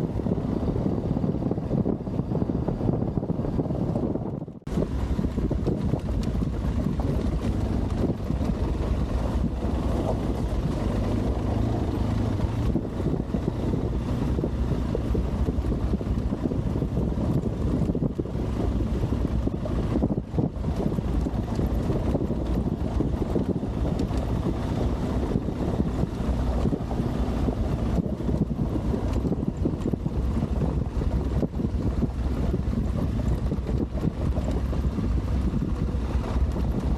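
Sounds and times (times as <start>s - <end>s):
motorcycle engine running: 0.0s - 36.9s
wind buffeting microphone: 0.0s - 36.9s.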